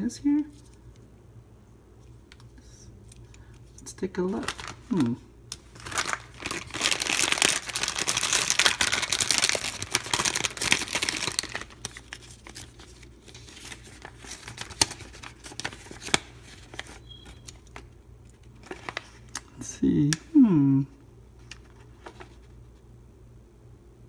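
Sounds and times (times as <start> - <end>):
wrapper crinkling: 4.2 - 19.5.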